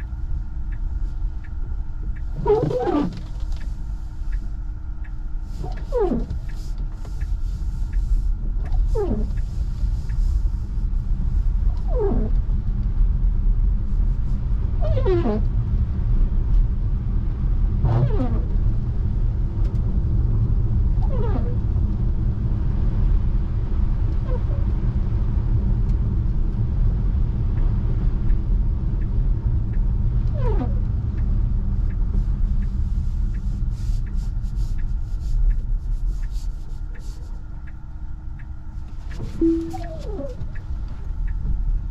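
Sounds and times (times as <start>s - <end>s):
wiper blade squeak: 2.4s - 3.2s, 14.8s - 15.4s, 21.0s - 21.6s, 39.1s - 40.4s.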